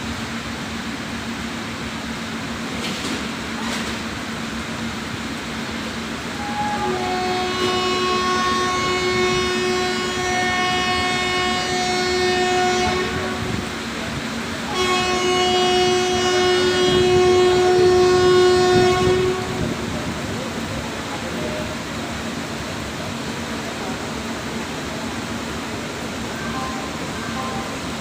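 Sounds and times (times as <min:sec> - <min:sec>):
rumble of moving train: 0:00.0 - 0:28.0
locomotive air horn blasts: 0:06.3 - 0:13.9, 0:14.6 - 0:20.0.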